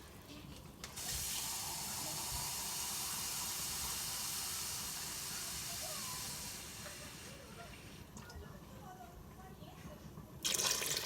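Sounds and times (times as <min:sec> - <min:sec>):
water pouring into a pot: 0:00.0 - 0:08.1, 0:10.4 - 0:11.0.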